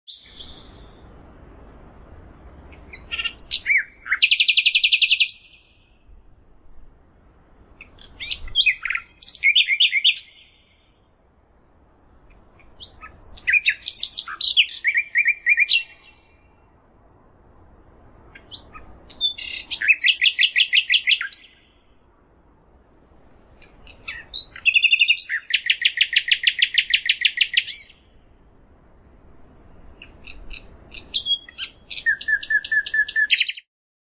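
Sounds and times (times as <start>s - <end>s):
songbird singing with trills: 0.1s - 1.1s, 2.6s - 6.1s, 7.3s - 11.0s, 12.3s - 16.7s, 18.0s - 22.0s, 23.6s - 28.2s, 29.8s - 33.7s.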